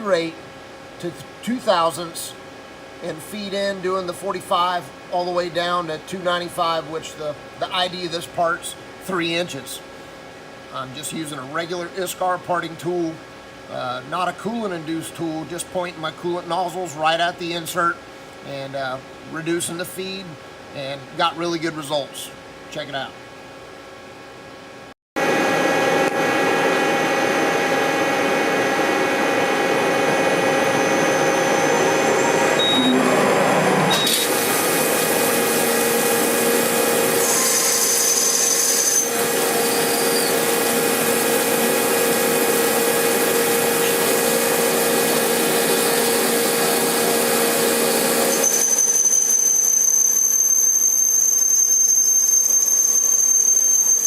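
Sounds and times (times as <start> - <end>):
high machine whine: 24.8 - 54.0
lathe machine hum: 25.2 - 48.5.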